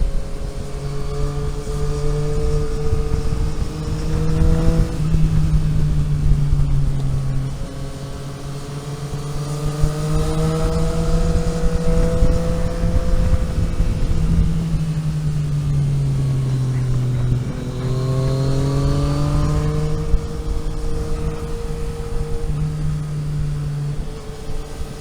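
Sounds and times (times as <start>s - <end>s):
car engine under load: 0.0s - 25.0s
low road rumble: 0.0s - 25.0s.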